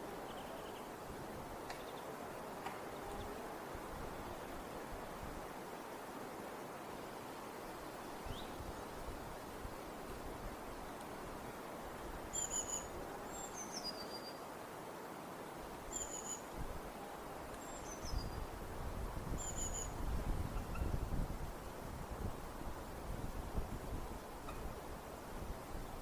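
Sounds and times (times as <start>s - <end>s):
steady outdoor hiss: 0.0s - 26.0s
birds chirping: 0.2s - 1.0s
falling bird whistle: 19.4s - 20.0s.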